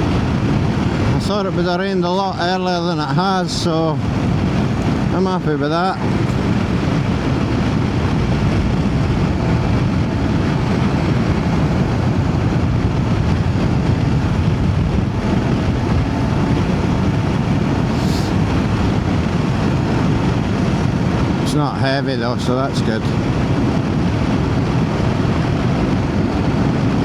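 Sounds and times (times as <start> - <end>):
wind noise on microphone: 0.0 - 27.0
motorcycle engine cruising: 4.0 - 21.7.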